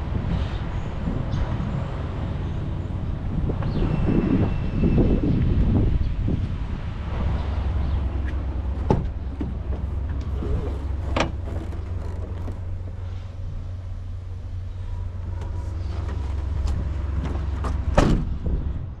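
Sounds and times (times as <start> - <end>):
diesel truck engine idling: 7.0 - 18.4
sharp engine knocks: 8.2 - 13.0, 15.4 - 18.8.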